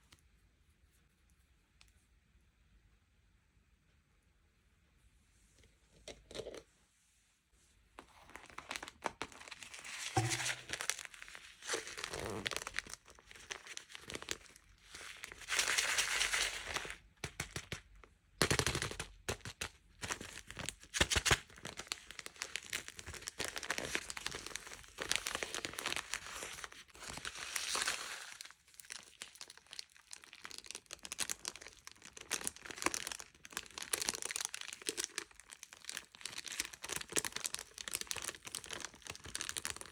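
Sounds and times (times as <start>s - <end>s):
plastic packaging crinkling and tearing: 8.1s - 17.8s, 18.4s - 39.9s.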